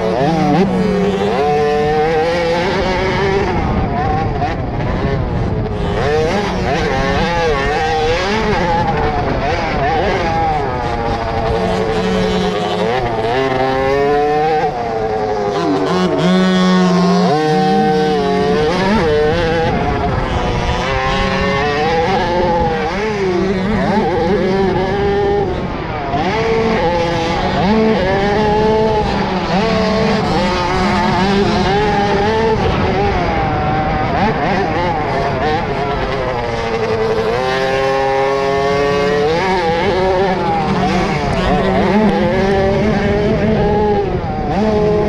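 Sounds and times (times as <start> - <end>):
motocross bikes revving: 0.0 - 45.0.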